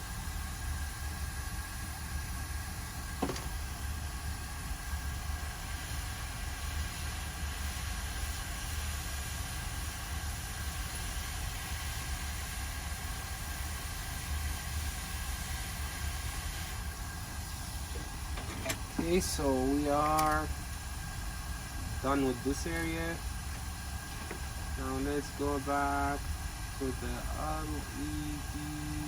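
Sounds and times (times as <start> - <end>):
steady air hiss: 0.0 - 29.0
low electronic hum: 16.5 - 29.0.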